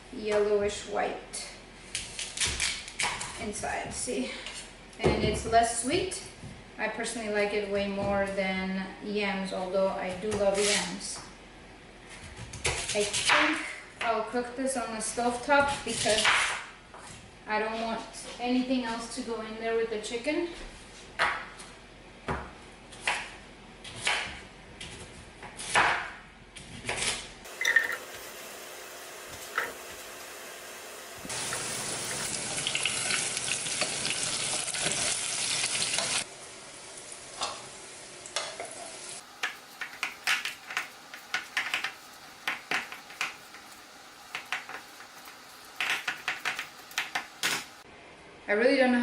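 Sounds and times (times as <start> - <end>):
food sizzling in a pan: 27.5 - 47.9
utensils knocking on cookware: 29.3 - 30.0, 45.8 - 47.7.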